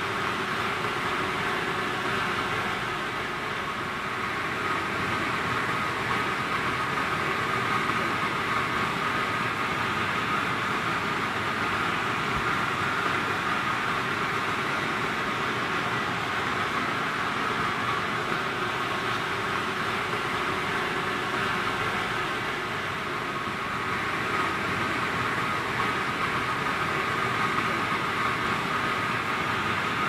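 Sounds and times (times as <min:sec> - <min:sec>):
industrial boiler running: 0:00.0 - 0:30.0.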